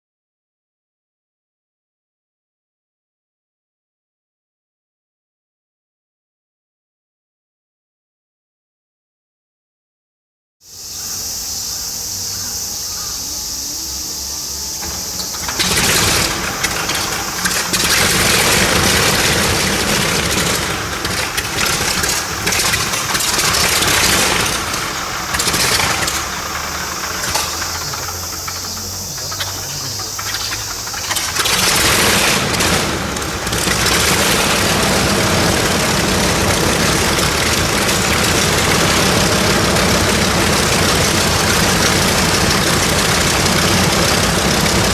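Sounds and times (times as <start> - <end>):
radial engine starting up: 10.7 - 44.9
steady hiss: 10.7 - 44.9.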